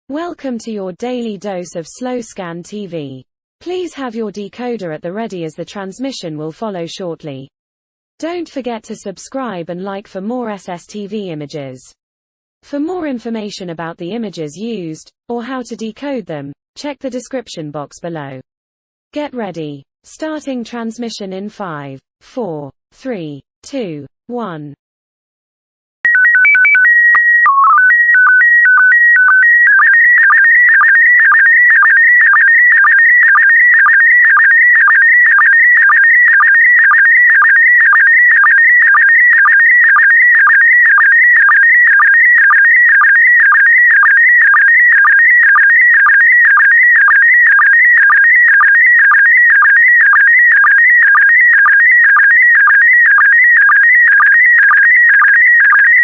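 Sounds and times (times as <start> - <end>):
high warbling tone with blips: 26.1 - 53.8
stepped calibration tones: 26.1 - 56.0.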